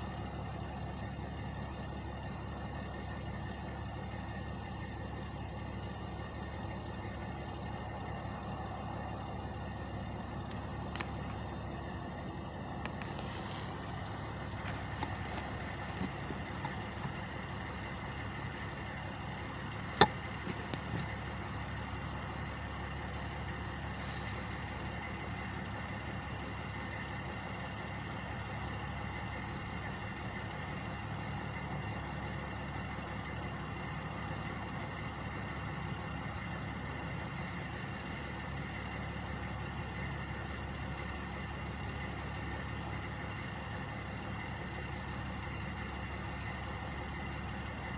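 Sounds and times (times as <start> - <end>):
truck engines idling: 0.0 - 47.9.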